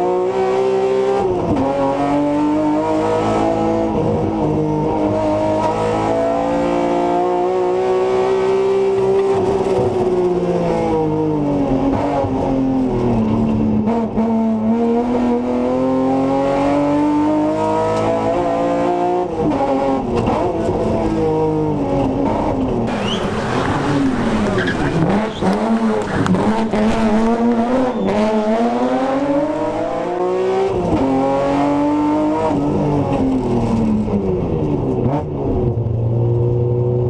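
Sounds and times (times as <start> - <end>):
car engine pulling hard: 0.0 - 36.8.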